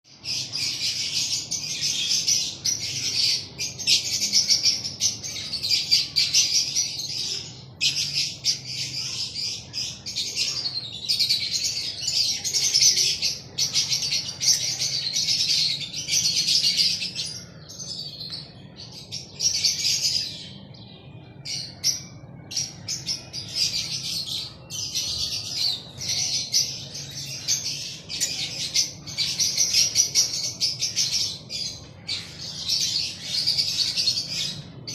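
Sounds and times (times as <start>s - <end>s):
lovebirds chattering: 0.1s - 34.9s.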